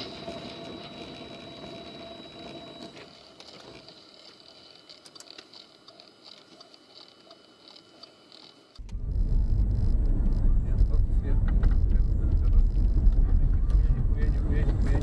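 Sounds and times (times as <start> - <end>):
faint irregular clicks: 2.8 - 9.0
quiet hum: 3.5 - 15.0
road noise: 8.8 - 15.0
vehicle whine: 8.8 - 15.0.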